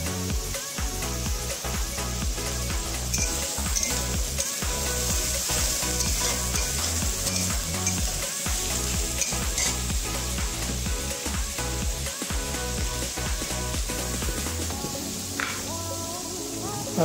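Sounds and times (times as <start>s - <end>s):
paste sizzling in oil: 0.0s - 17.0s
metal spatula stirring in pan: 3.1s - 9.9s.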